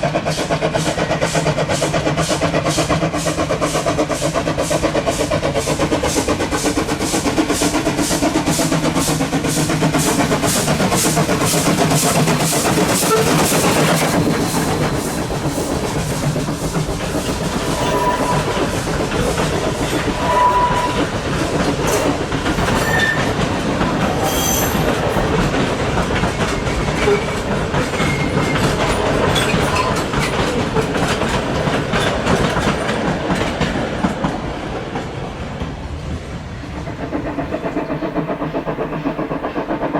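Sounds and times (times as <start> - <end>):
steam locomotive exhaust beats: 0.0 - 39.9
wheels clattering on rails: 0.0 - 39.9
short high squeals: 17.7 - 18.6.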